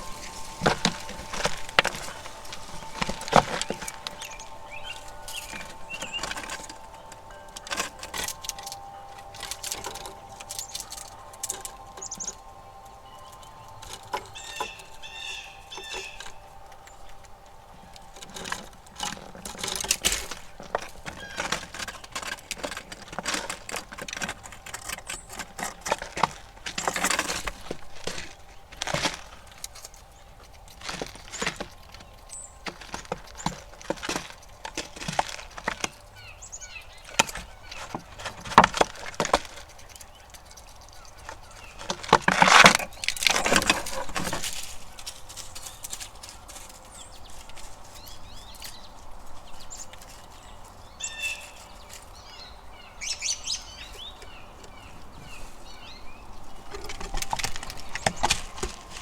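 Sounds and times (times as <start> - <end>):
bird chirps: 0.0 - 22.2, 34.9 - 42.1, 42.8 - 59.0
faint steady whine: 0.0 - 40.0
squirrels clicking and scratching: 0.0 - 59.0.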